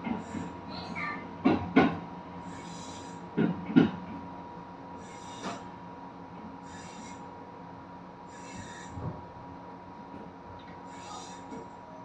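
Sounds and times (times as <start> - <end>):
train wheels knocking on rail joints: 0.0 - 0.6, 1.4 - 4.2
train running hum: 0.0 - 12.0.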